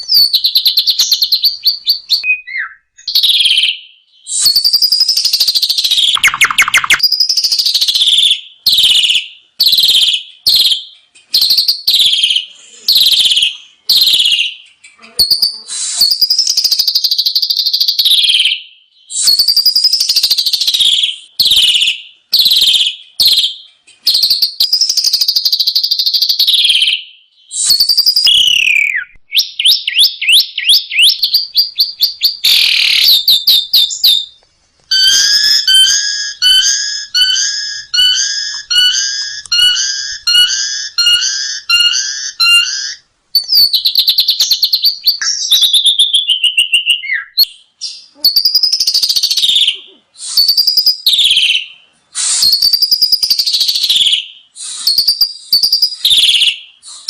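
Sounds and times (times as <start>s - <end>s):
evenly pitched repeated bird call: 0.0s - 57.0s
starling singing whistled song: 0.0s - 57.0s.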